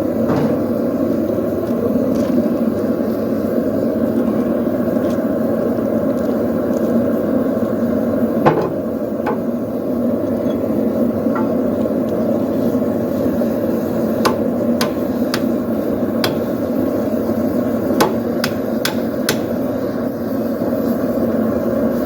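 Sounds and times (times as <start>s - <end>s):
forge roaring low: 0.0s - 22.0s
hammer striking steel: 14.2s - 16.7s, 17.9s - 19.7s.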